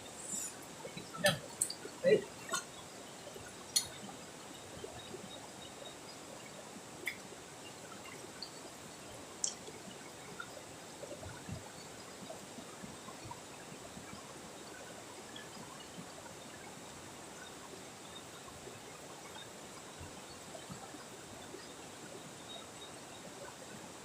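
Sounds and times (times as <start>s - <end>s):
running water: 0.0s - 24.0s
faint ticks: 0.1s - 16.7s.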